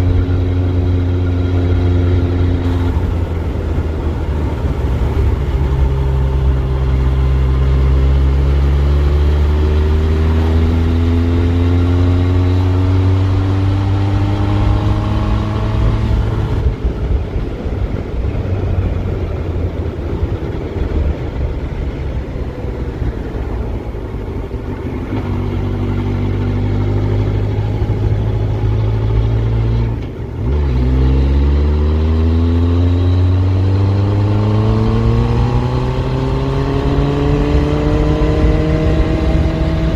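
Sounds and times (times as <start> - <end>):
motorcycle engine accelerating: 0.0 - 39.9
wind and road rush: 0.0 - 39.9.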